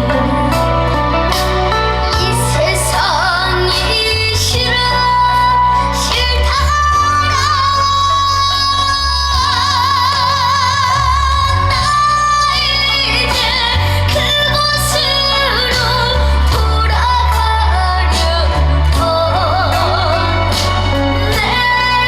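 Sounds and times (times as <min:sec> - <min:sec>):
loud accompaniment with bass: 0:00.0 - 0:22.0
person singing with vibrato: 0:00.0 - 0:22.0.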